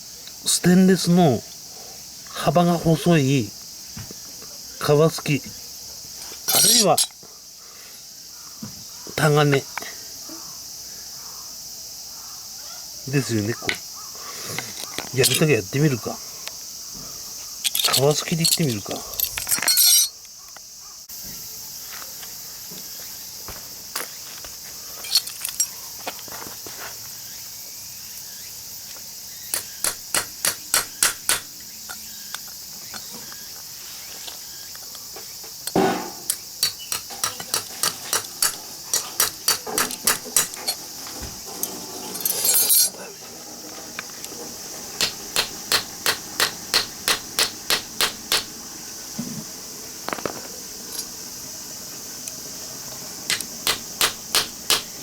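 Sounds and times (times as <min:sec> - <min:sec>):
high insect drone: 0:00.0 - 0:55.0
hammer tapping metal scraper: 0:29.6 - 0:31.5, 0:35.7 - 0:40.8, 0:45.0 - 0:48.5, 0:53.3 - 0:55.0.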